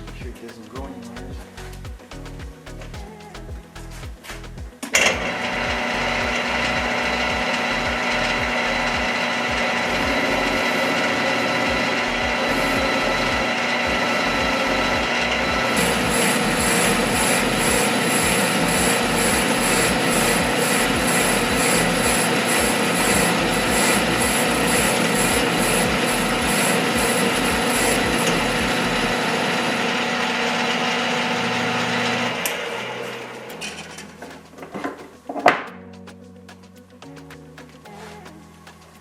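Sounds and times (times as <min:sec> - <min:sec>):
metal lathe cutting brass: 0:05.2 - 0:34.0.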